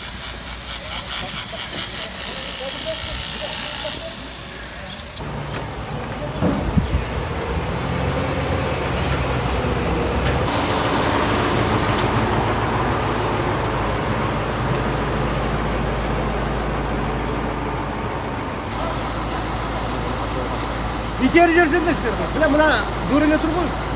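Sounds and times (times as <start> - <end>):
short knocks: 5.2 - 7.6
motor engine running: 5.2 - 23.9.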